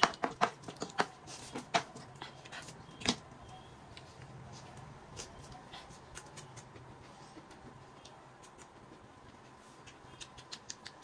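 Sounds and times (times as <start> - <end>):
wet mouth clicks and smacks: 9.8 - 11.0.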